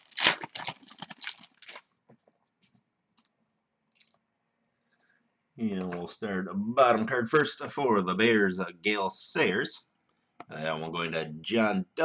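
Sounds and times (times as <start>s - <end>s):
card pack crinkling: 0.0s - 2.0s.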